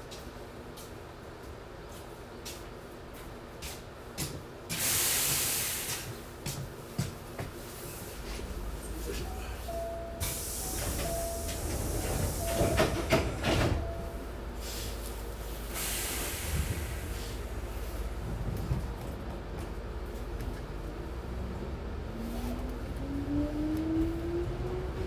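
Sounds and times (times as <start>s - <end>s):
compressed air hissing: 4.8s - 6.1s, 10.2s - 13.4s, 14.6s - 18.0s
train door knocks: 9.9s - 14.2s.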